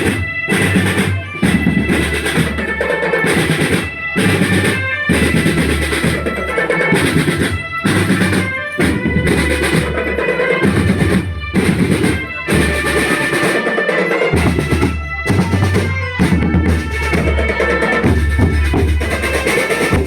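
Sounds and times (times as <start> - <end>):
marching snare and bass drums: 0.0 - 20.0.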